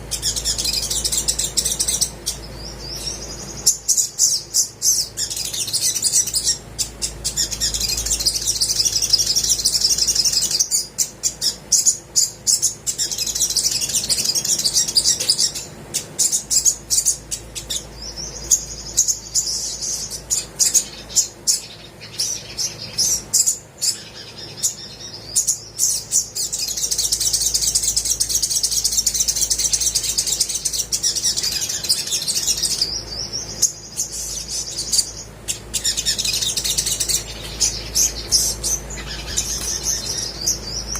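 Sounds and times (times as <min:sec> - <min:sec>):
bird singing high trills: 0:00.0 - 0:40.9.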